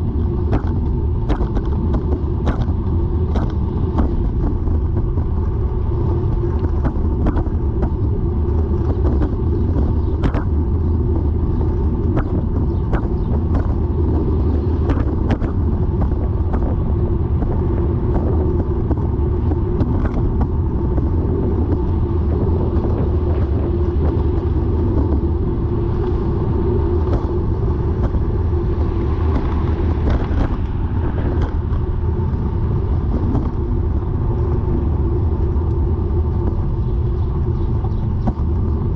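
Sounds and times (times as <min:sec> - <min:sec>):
bicycle drivetrain clicking: 0:00.0 - 0:38.9
bicycle rumbling: 0:00.0 - 0:38.9.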